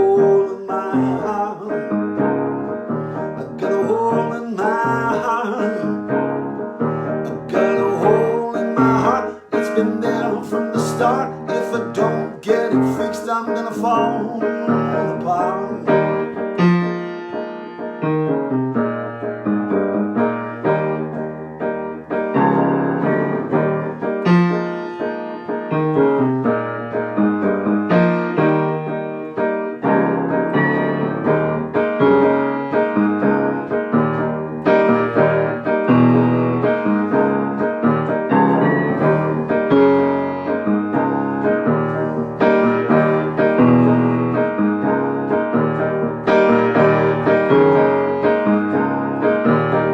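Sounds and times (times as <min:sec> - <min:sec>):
solo piano playing: 0:00.0 - 0:49.9.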